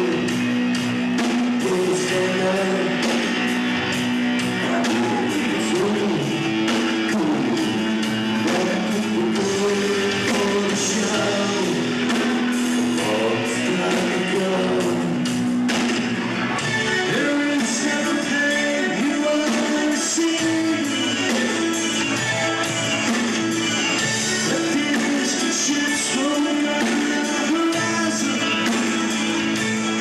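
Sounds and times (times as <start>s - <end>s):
person singing: 0.0s - 15.6s, 16.6s - 30.0s
drums: 0.0s - 30.0s
electric guitar: 0.0s - 30.0s.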